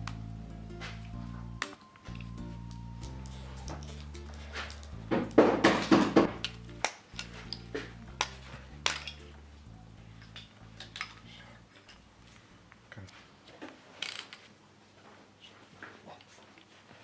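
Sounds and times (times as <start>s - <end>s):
quiet background music: 0.0s - 13.5s.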